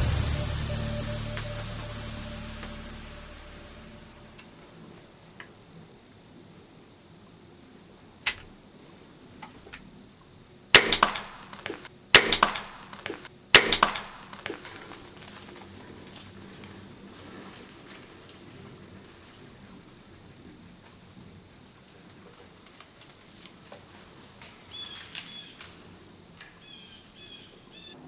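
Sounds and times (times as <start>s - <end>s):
loud crackling rustles: 10.8s - 19.6s.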